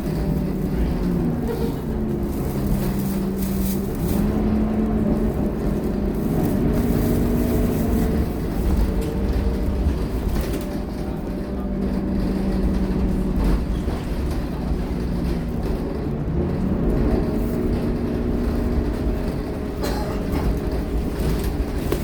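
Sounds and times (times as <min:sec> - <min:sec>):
bus engine humming: 0:00.0 - 0:22.0
road rumble: 0:00.0 - 0:22.0.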